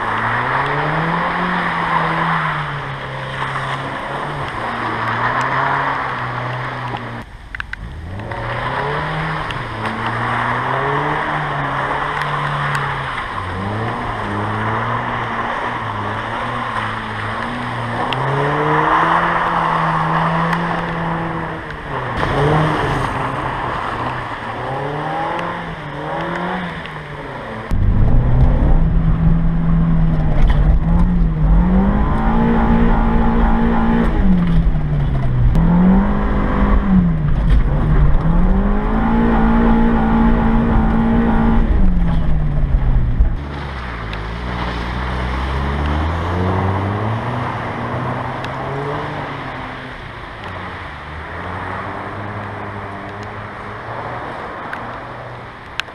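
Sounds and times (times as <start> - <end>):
car engine revving: 0.0 - 55.9
heavy low rumble: 27.6 - 46.2.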